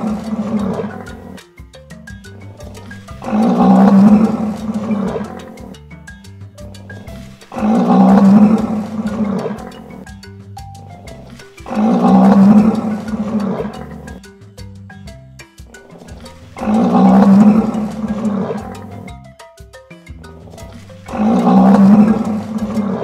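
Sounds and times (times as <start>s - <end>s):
rhinoceros call: 0.0s - 1.4s, 2.3s - 5.8s, 6.6s - 10.1s, 11.0s - 14.3s, 15.7s - 19.2s, 20.4s - 23.0s
light background music: 0.0s - 22.8s.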